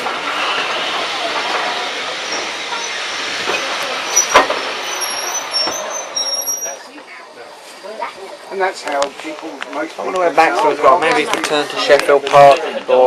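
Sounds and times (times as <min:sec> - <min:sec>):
steam locomotive hissing: 0:00.0 - 0:10.4.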